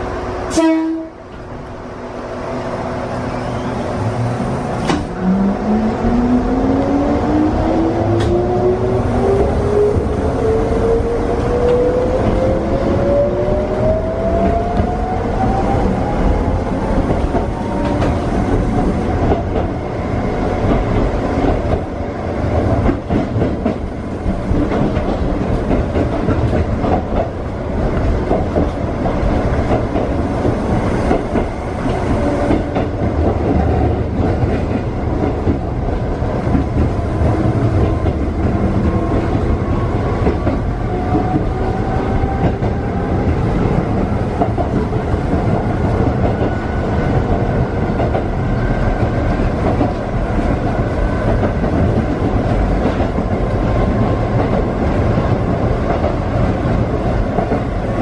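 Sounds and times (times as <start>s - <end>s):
train running rumble: 0.0s - 58.0s
train wheels clicking over rail joints: 22.5s - 58.0s.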